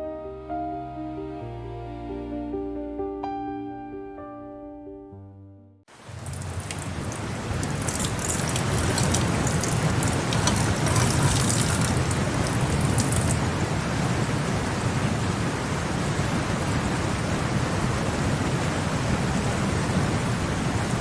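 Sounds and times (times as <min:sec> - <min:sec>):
steady hiss of rain: 0:05.9 - 0:14.3
fine crackling: 0:06.0 - 0:14.3.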